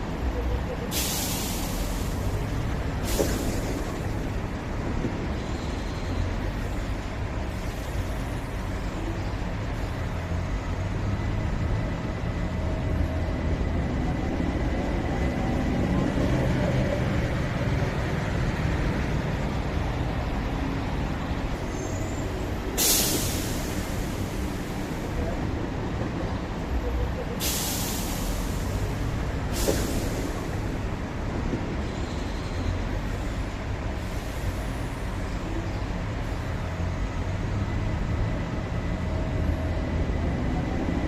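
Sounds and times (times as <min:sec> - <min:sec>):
light rail train rumbling: 0:00.0 - 0:41.0
air hiss bursts: 0:00.9 - 0:02.4, 0:22.8 - 0:24.9, 0:27.4 - 0:30.6.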